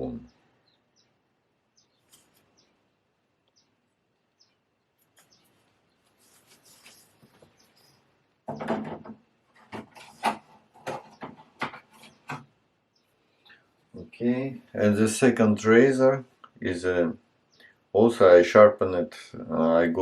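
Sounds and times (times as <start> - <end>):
soft scraping: 5.0 - 8.1
objects knocking and clattering: 8.4 - 12.6.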